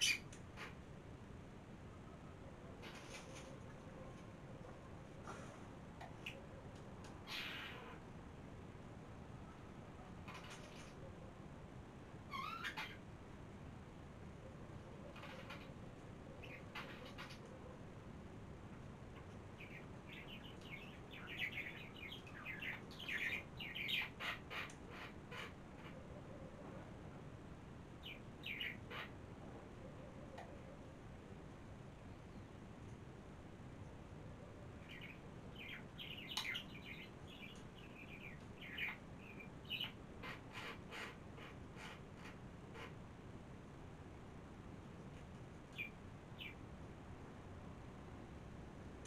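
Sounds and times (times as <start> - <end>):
small birds twittering: 0.0 - 0.8, 6.1 - 8.1, 10.2 - 11.0, 12.3 - 13.0, 16.4 - 17.6, 19.2 - 26.0, 28.0 - 29.1, 34.8 - 43.0, 45.6 - 46.6
songbird chirping: 0.0 - 0.8, 19.1 - 24.9, 28.0 - 29.1, 34.6 - 40.6.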